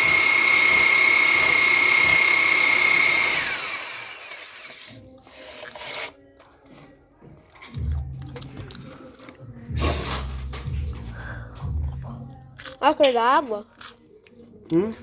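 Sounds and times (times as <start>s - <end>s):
power tool whining: 0.0s - 6.2s.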